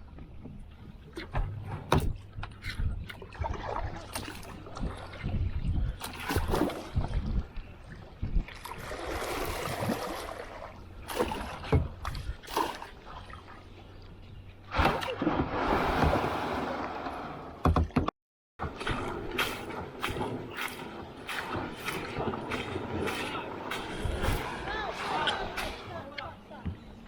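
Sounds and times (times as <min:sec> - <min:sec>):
paddle strokes splashing in water: 0:03.1 - 0:05.3, 0:06.0 - 0:07.4, 0:08.5 - 0:13.8, 0:14.7 - 0:18.0, 0:18.6 - 0:26.2
rushing water: 0:08.5 - 0:13.6, 0:14.7 - 0:17.8, 0:18.6 - 0:26.3.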